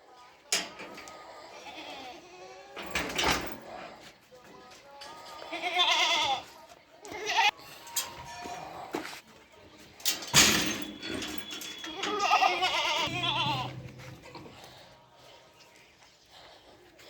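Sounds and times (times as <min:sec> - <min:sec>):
goats bleating: 0:01.4 - 0:02.8, 0:05.2 - 0:09.1, 0:11.9 - 0:14.5.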